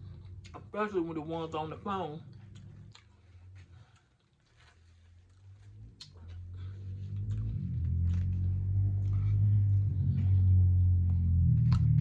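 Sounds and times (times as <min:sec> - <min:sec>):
low steady hum: 0:00.0 - 0:12.0
mouth sounds of eating: 0:02.2 - 0:04.6, 0:05.2 - 0:09.6.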